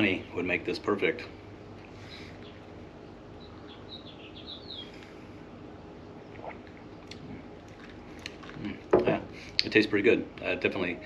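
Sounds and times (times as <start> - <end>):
low background hum: 0.0 - 11.0
bird chirping: 2.0 - 2.7, 3.3 - 5.1.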